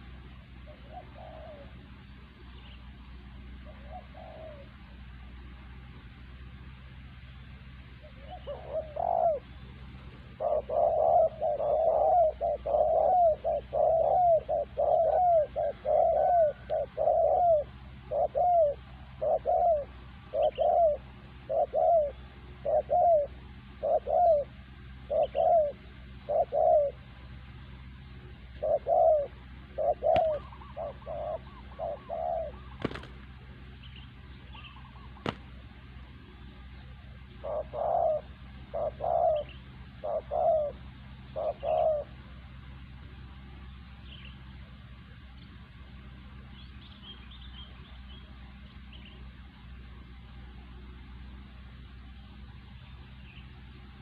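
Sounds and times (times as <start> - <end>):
dove cooing: 0.0 - 5.2, 8.0 - 35.6, 36.2 - 42.6.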